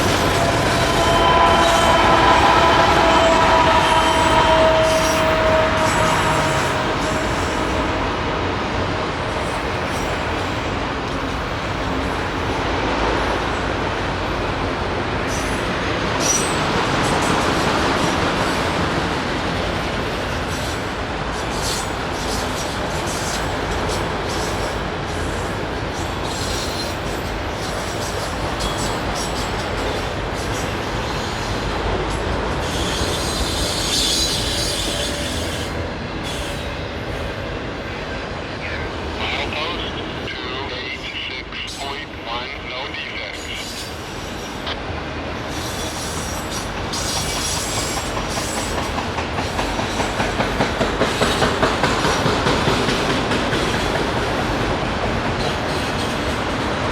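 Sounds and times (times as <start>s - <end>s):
wheel squeal: 0.0s - 7.8s, 32.6s - 35.7s
train wheels rumbling on rails: 0.0s - 40.4s, 41.4s - 56.9s.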